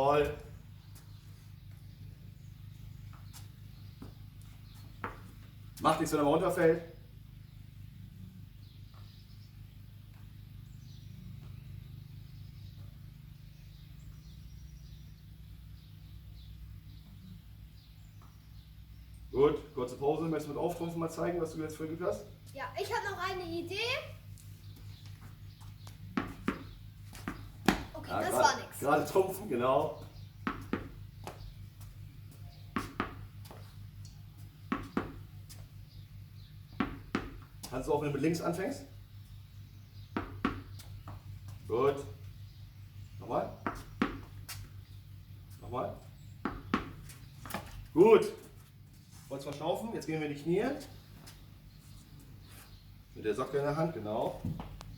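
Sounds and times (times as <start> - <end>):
faint birds chirping: 0.0 - 54.9
steady low hum: 0.0 - 54.9
tennis ball bouncing on hard floor: 5.0 - 5.4, 25.1 - 28.4, 30.1 - 31.9, 32.7 - 33.7, 34.6 - 35.6, 36.7 - 37.8, 40.0 - 41.3, 43.6 - 44.7, 46.4 - 47.8, 54.4 - 54.9.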